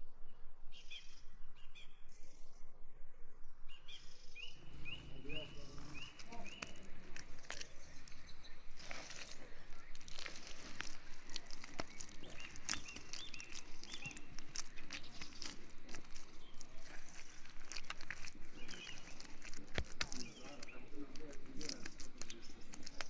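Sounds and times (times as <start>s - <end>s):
animals crunching and clicking: 4.6s - 23.0s.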